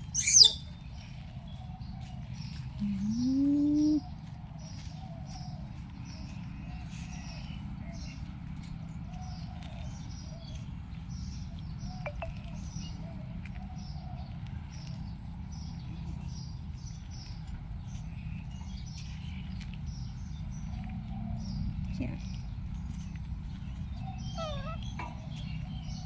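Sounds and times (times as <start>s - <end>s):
small bird chirping: 0.0s - 1.2s, 2.0s - 5.0s, 21.4s - 26.0s.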